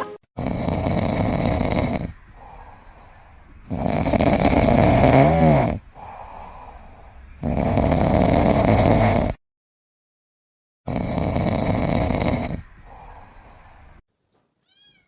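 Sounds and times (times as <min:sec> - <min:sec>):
person snoring: 0:00.4 - 0:09.4, 0:10.9 - 0:14.0
quiet breaths: 0:00.5 - 0:09.4, 0:11.0 - 0:14.0.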